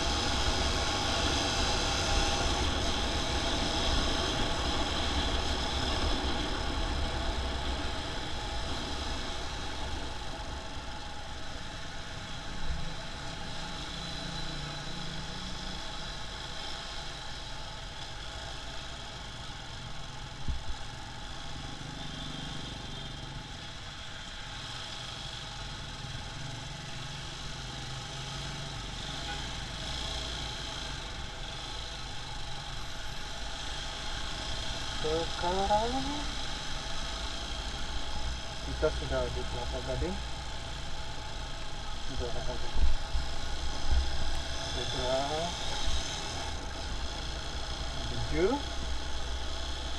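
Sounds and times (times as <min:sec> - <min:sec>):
road noise: 0:00.0 - 0:49.9
motorcycle engine rumble: 0:30.4 - 0:49.9.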